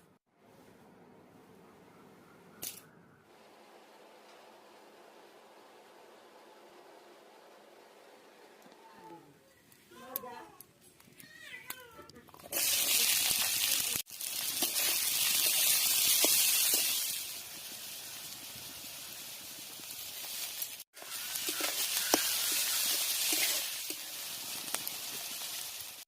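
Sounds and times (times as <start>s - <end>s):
chicken sizzling in pan: 12.4s - 26.0s.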